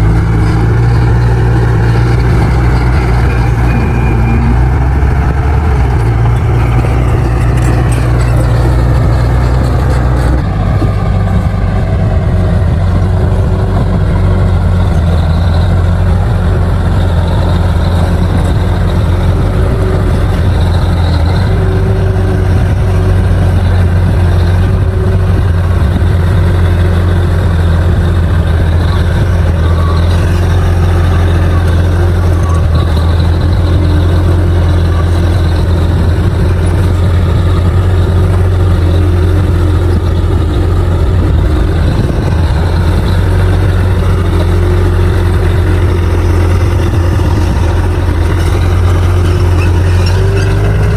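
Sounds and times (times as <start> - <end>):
bulldozer diesel engine running: 0.0 - 50.9.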